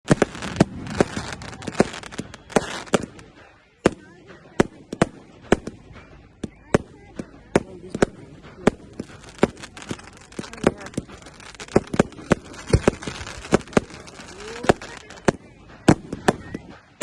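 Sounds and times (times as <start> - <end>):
firework shells bursting: 7.4 - 17.0.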